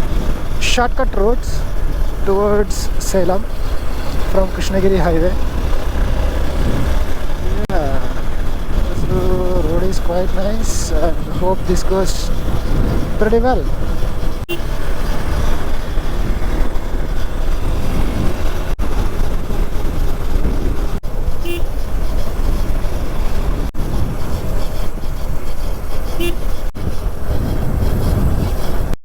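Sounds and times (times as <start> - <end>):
motorcycle engine running: 0.0 - 29.0
wind and road noise: 0.0 - 29.0
horn toots: 1.5 - 16.7, 21.4 - 21.8, 26.1 - 28.4.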